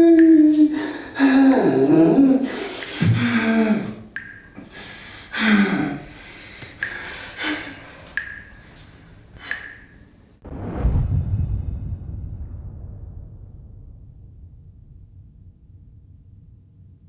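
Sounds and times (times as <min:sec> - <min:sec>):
person breathing heavily with gasps: 0:00.6 - 0:08.1.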